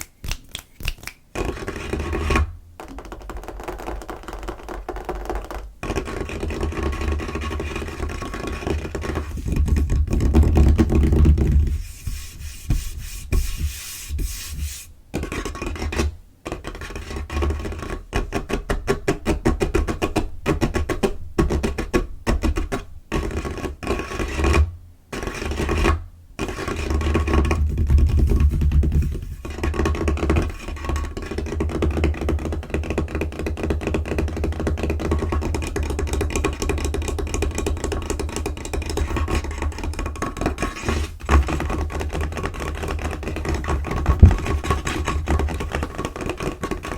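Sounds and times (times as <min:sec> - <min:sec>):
nails scratching a surface: 0:00.8 - 0:18.5, 0:38.1 - 0:46.9
fingers tapping on a tabletop: 0:02.8 - 0:07.0.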